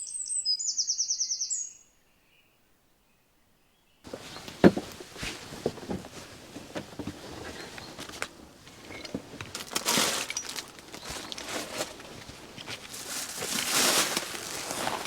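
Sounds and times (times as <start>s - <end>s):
dry material crinkling: 4.1s - 15.0s.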